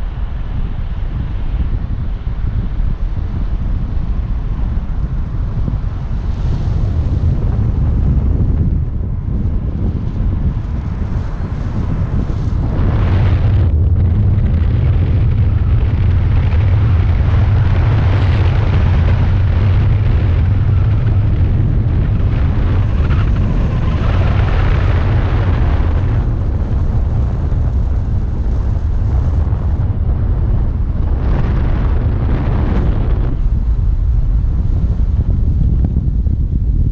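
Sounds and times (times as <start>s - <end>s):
vehicle low rumble: 0.0s - 36.9s
wind buffeting microphone: 0.0s - 36.9s.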